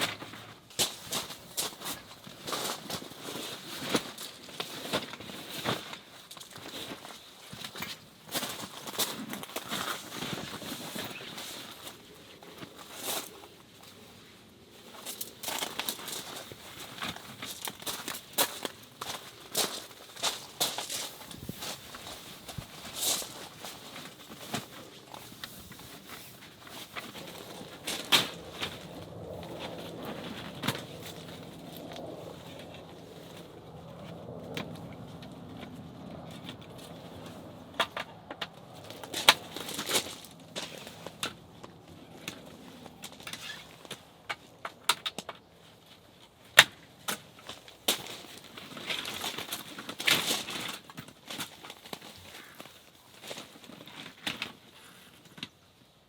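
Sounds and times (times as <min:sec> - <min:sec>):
camping gear knocks and clicks: 0:25.4 - 0:32.0, 0:34.0 - 0:45.5
clicks and knocks of gear: 0:34.0 - 0:55.6.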